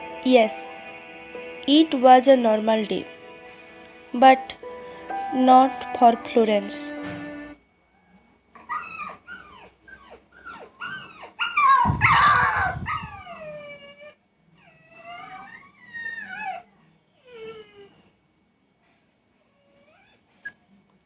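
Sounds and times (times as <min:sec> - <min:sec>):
puppy whimpering and yelping: 0:08.6 - 0:18.0, 0:19.5 - 0:20.6.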